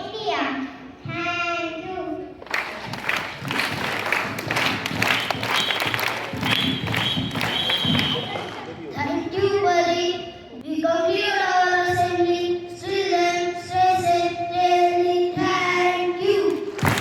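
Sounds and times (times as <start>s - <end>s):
children singing slow melody: 9.0s - 16.8s.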